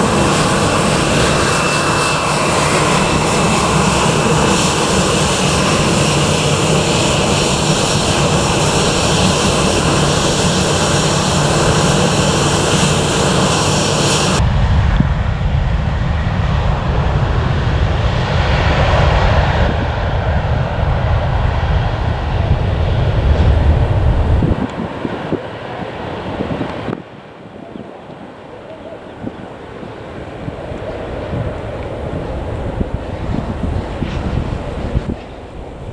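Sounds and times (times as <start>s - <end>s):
deep rumble: 0.0s - 24.7s
jet engine high whine: 0.0s - 35.9s
jet engines roaring: 0.0s - 35.9s.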